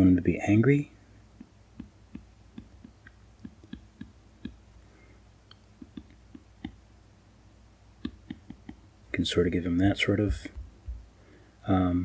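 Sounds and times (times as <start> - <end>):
stylus tapping on a tablet screen: 1.4 - 4.6, 5.5 - 6.8, 8.0 - 8.8.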